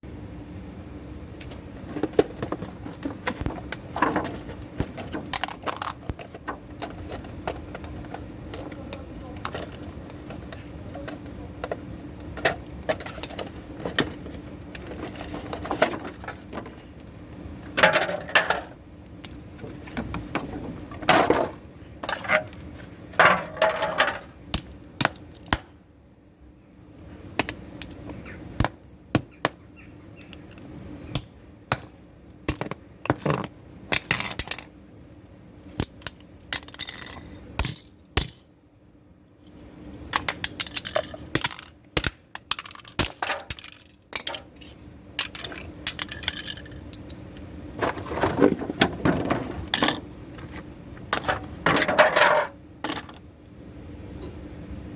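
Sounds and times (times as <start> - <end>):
broken pieces clinking: 42.4 - 47.3.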